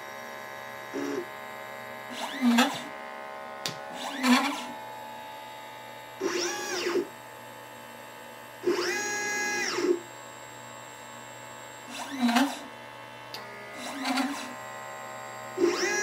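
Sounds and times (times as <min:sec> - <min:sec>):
steady machine hum: 0:00.0 - 0:16.0
stepper motors whining: 0:00.9 - 0:05.0, 0:06.2 - 0:07.1, 0:08.6 - 0:10.1, 0:11.8 - 0:12.6, 0:13.3 - 0:14.8, 0:15.5 - 0:16.0.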